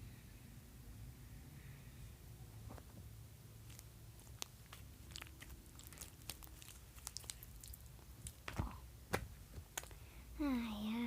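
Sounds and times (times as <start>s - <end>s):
stiff slime clicking and crackling: 3.6s - 10.0s
slime snapping: 3.7s - 10.0s.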